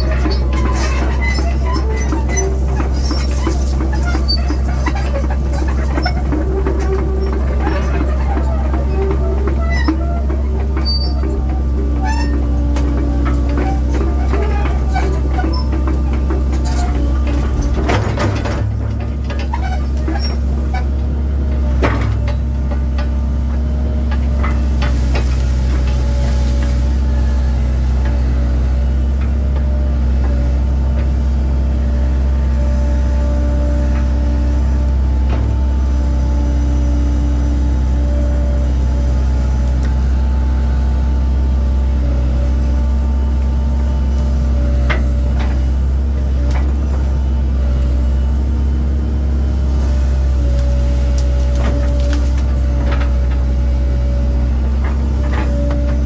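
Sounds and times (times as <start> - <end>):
knocks and clanks: 0.0 - 26.9
excavator diesel engine running: 0.0 - 56.0.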